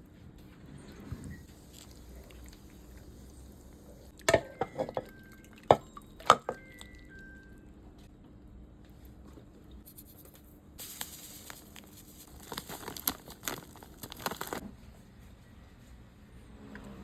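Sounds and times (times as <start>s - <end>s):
crinkling tearing rustle: 10.8s - 14.6s.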